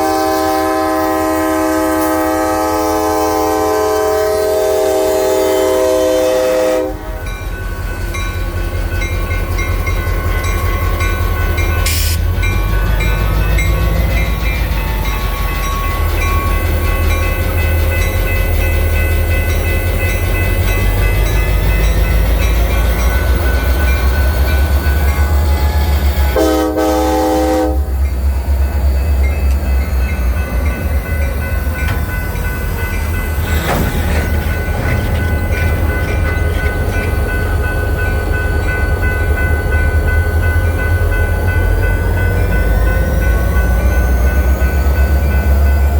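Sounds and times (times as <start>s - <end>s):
locomotive horn: 0.0s - 7.3s, 22.9s - 28.6s
diesel locomotive rumble: 0.0s - 45.9s.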